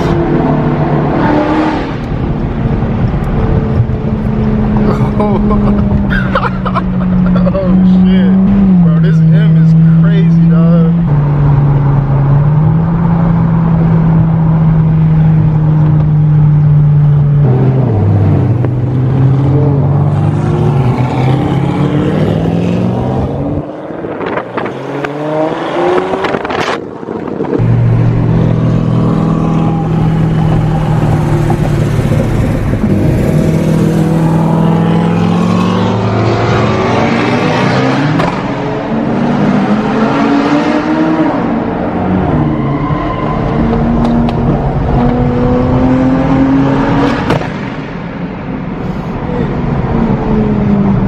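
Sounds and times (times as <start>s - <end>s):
car engine running: 2.0s - 21.9s, 27.3s - 36.1s.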